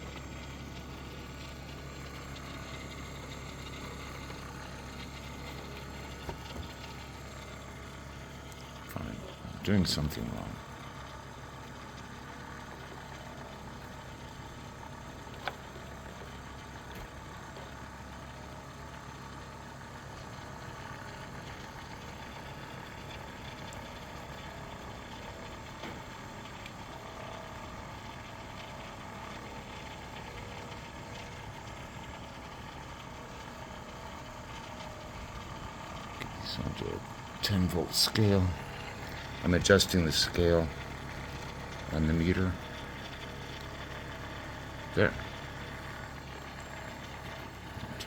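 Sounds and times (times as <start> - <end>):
motor rotor humming: 0.0 - 48.0.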